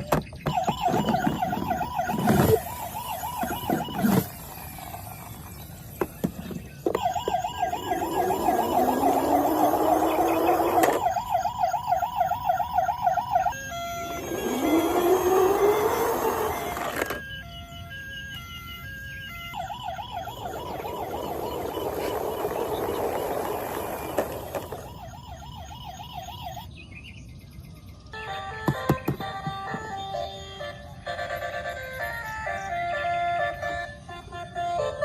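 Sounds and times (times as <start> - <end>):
toy electronic siren warbling: 0.0 - 26.7
engine rev whine: 0.4 - 26.6.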